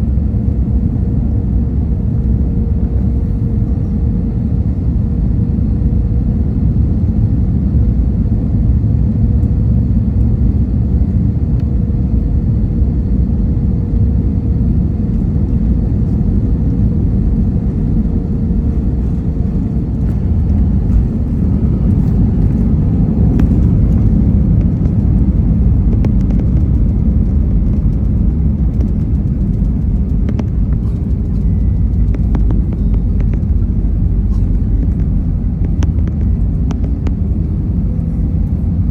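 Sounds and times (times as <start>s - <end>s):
aircraft cabin rumble: 0.0s - 38.9s
small clicks and rattles: 18.8s - 37.4s.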